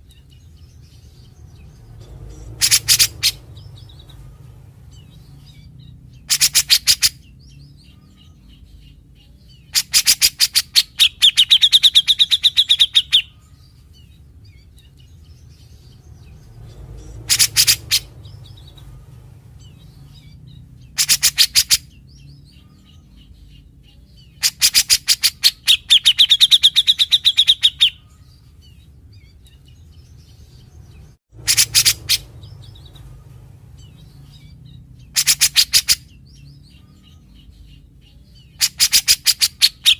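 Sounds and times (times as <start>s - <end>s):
low steady hum: 0.0s - 21.0s, 27.9s - 35.2s
bulbul rattling song: 0.0s - 39.9s.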